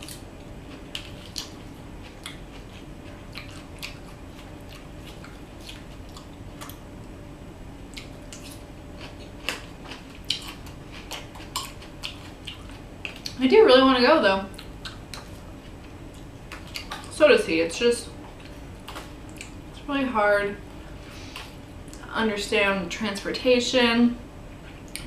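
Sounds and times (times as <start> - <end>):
crunchy salad chewing: 0.0 - 7.2, 7.8 - 13.4, 14.5 - 17.2.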